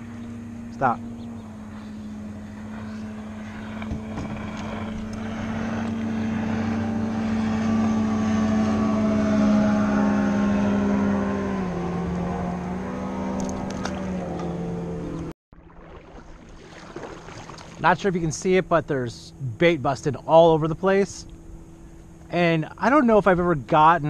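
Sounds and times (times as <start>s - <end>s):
passing motor engine drone: 0.0s - 23.7s.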